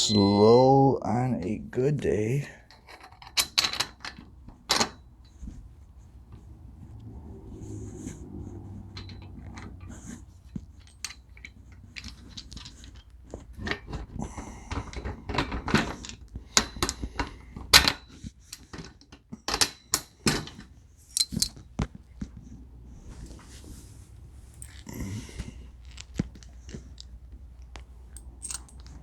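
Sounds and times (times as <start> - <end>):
metal hardware clinking: 2.6 - 5.4, 8.8 - 21.7, 24.5 - 29.0.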